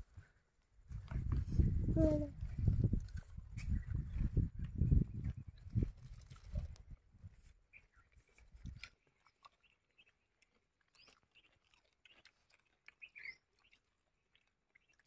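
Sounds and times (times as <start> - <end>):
person chewing food: 7.9 - 15.0.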